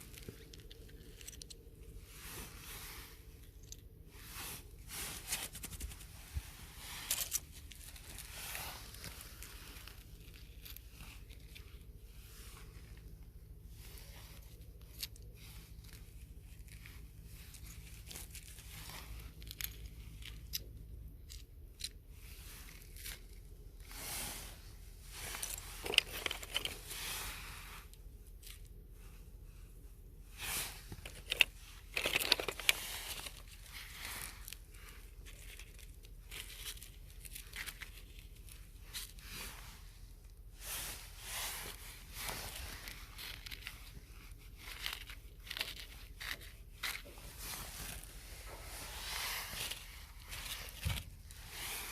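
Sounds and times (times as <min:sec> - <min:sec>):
tearing and crinkling: 0:06.8 - 0:11.8, 0:30.4 - 0:39.6, 0:41.2 - 0:51.9.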